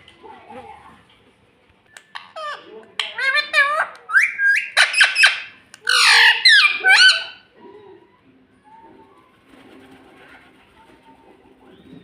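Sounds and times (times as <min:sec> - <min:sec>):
parakeet screeching: 0:03.2 - 0:07.5.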